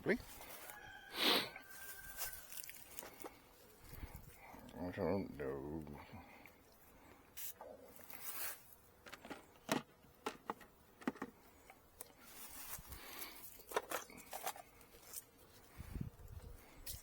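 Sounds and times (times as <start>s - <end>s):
wooden frames scraping and rustling: 12.2s - 15.4s.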